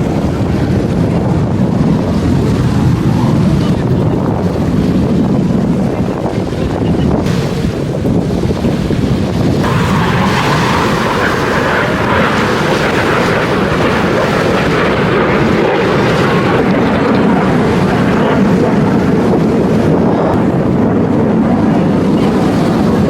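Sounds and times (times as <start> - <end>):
plane engine flying by: 9.6 - 23.0.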